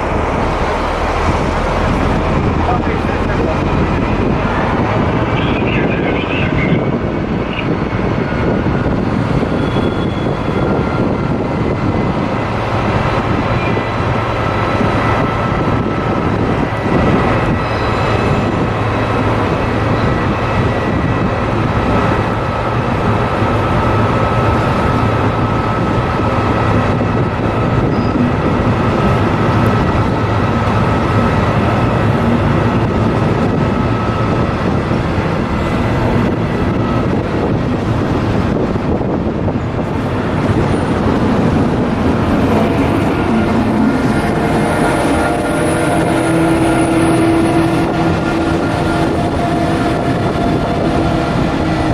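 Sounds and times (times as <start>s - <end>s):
strong whine: 0.0s - 51.9s
train rumbling: 0.0s - 51.9s.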